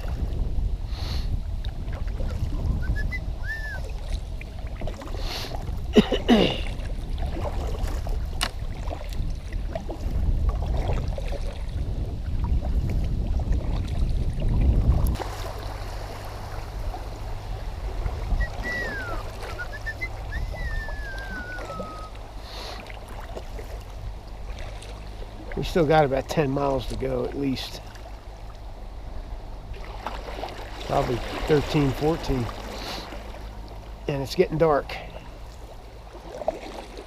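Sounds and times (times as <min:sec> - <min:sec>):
wind buffeting microphone: 0:00.0 - 0:22.4
kayak paddling: 0:00.0 - 0:37.0
faint whistled chirps: 0:02.7 - 0:03.9, 0:18.3 - 0:22.2.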